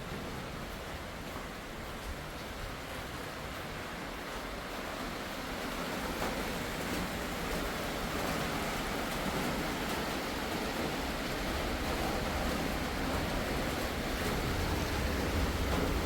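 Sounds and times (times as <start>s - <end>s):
strong wind blowing: 11.4s - 16.0s.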